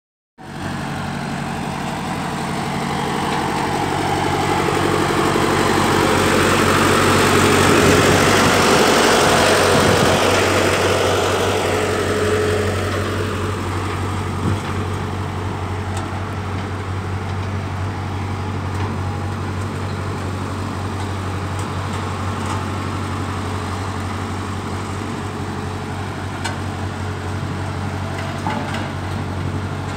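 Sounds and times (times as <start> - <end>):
road roller diesel engine running: 0.4 - 29.9
broad rushing noise: 1.4 - 14.9.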